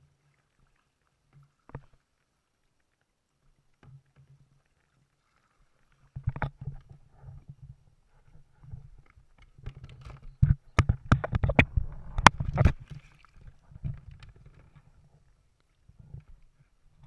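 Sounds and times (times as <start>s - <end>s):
water rumbling: 0.0s - 17.0s
wind on microphone: 9.6s - 14.4s.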